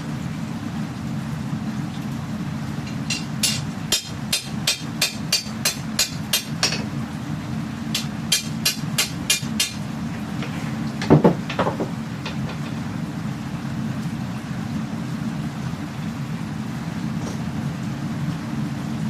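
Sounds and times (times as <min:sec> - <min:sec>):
hammer striking steel: 0:02.9 - 0:06.9, 0:08.0 - 0:09.8
dull knock: 0:11.0 - 0:12.8.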